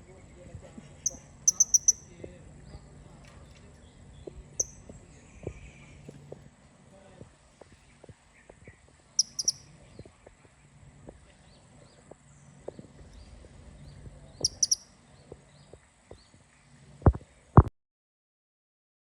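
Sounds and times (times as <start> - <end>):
faint short chirps: 1.0 - 2.1, 9.2 - 9.6, 14.4 - 14.8
parrot high sharp calls: 1.1 - 2.0, 9.2 - 9.6, 14.4 - 14.9.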